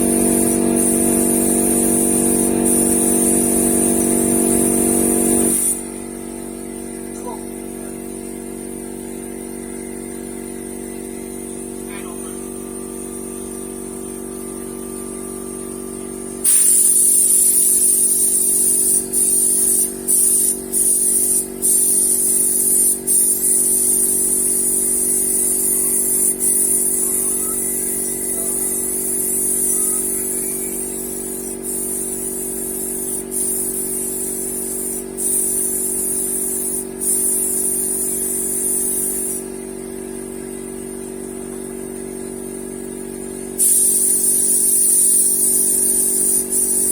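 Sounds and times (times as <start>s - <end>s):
paint spray gun hissing: 0.0s - 6.6s, 16.2s - 40.2s, 43.4s - 46.9s.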